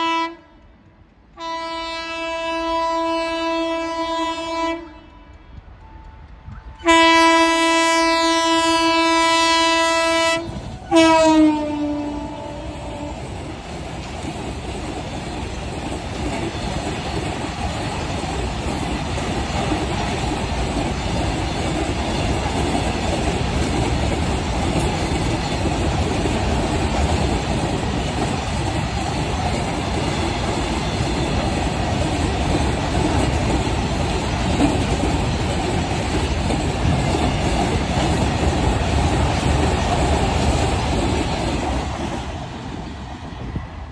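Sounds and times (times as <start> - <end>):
steel wheels on rail: 0.0 - 43.9.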